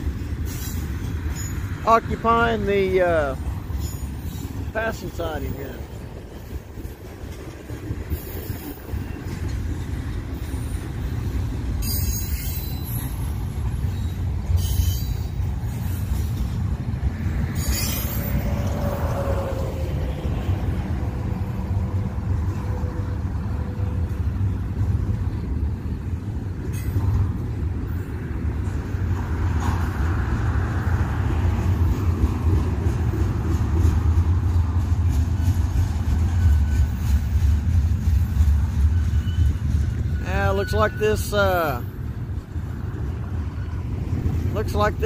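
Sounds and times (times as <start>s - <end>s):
freight train rumbling on rails: 0.0s - 45.0s
high wheel squeals: 3.4s - 4.6s, 11.8s - 16.4s, 17.5s - 19.8s, 36.2s - 37.5s, 38.2s - 42.0s, 42.7s - 44.5s.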